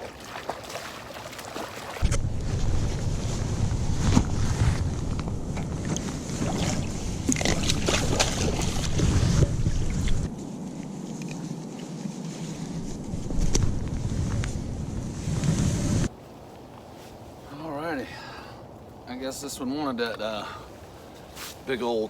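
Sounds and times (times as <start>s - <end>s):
water splashes: 0.0s - 2.3s, 5.6s - 10.3s
wind rumbling on microphone: 2.0s - 16.2s.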